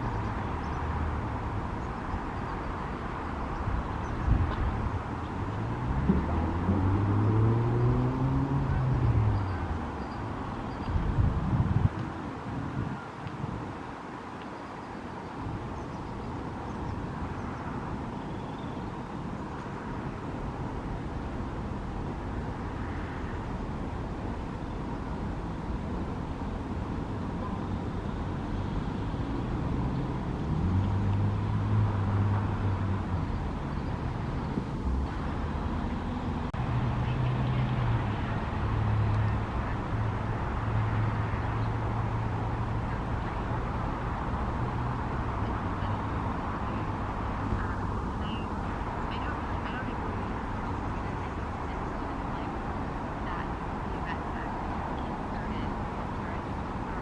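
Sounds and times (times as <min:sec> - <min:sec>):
road traffic noise: 0:00.0 - 0:57.0
vehicle engine low hum: 0:04.3 - 0:12.0, 0:25.2 - 0:51.9.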